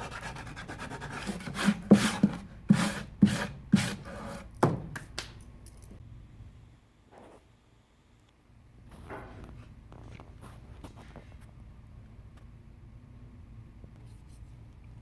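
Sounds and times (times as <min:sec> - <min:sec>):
sandpaper rubbing on wood: 0:00.0 - 0:04.4.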